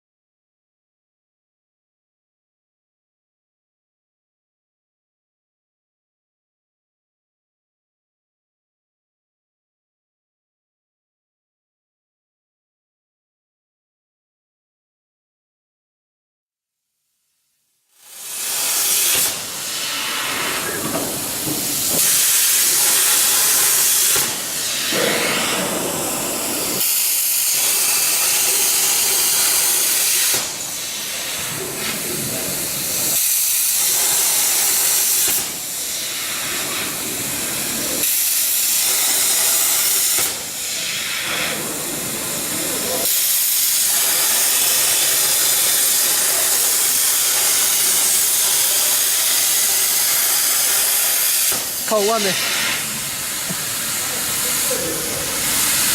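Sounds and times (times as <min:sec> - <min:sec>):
plasma torch hissing: 0:18.0 - 0:55.9.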